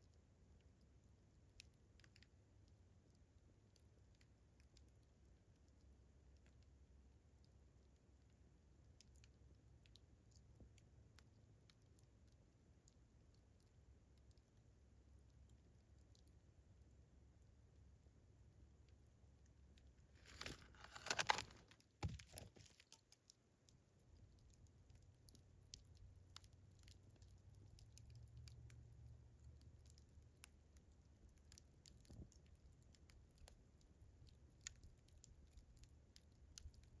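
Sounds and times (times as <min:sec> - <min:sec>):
campfire crackling and popping: 0:19.7 - 0:37.0.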